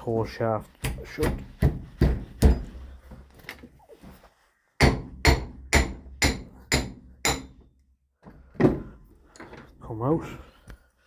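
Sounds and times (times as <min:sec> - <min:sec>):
hammer strikes on metal: 0:00.8 - 0:02.8, 0:04.8 - 0:07.7.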